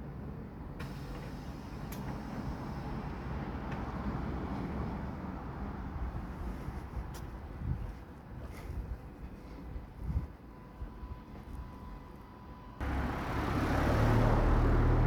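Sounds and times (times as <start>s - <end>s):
bus engine idling: 0.6s - 7.4s, 12.8s - 15.0s.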